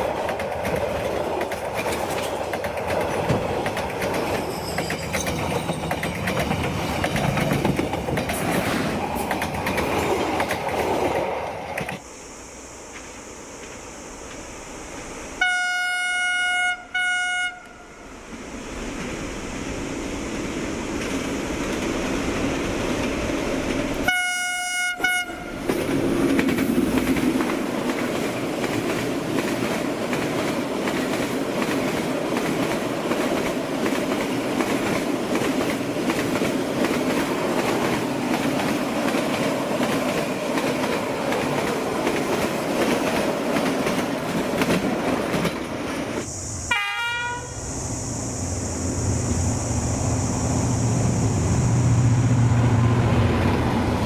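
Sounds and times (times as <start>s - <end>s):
train wheels clattering on rails: 0.0s - 12.0s, 25.5s - 46.3s
train horn blasts: 15.4s - 18.0s, 24.0s - 25.6s, 46.7s - 47.6s.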